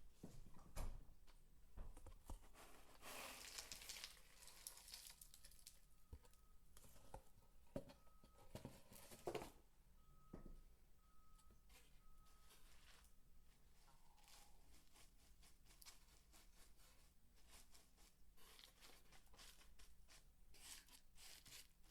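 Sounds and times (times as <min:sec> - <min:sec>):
soap shavings crunching: 0:03.0 - 0:05.9.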